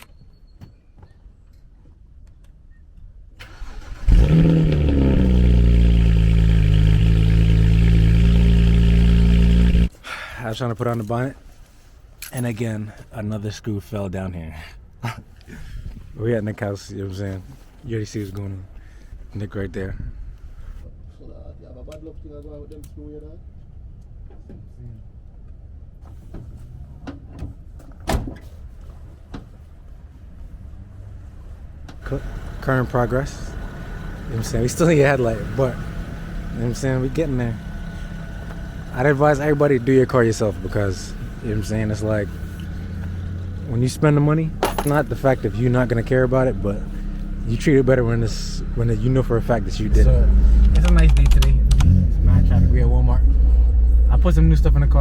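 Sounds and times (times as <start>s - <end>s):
car engine starting and idling: 3.4s - 9.9s, 31.9s - 55.0s
steady low rumble: 32.0s - 55.0s.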